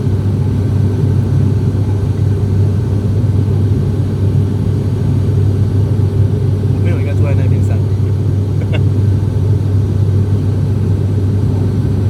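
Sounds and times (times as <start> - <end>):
airplane cabin engine hum: 0.0 - 12.0.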